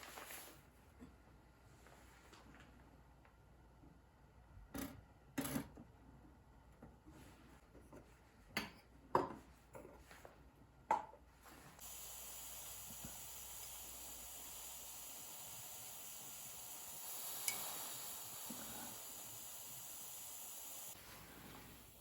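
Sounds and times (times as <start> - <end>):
steady hiss: 11.8 - 22.0.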